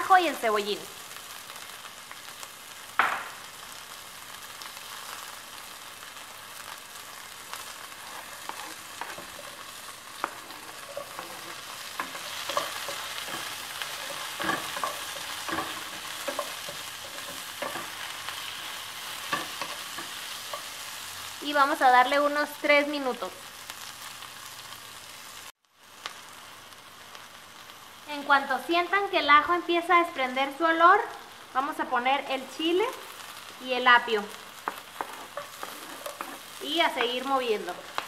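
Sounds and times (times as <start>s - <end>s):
onion frying in oil: 0.0s - 38.0s
wooden spatula scraping pan: 7.9s - 18.6s, 34.6s - 37.1s.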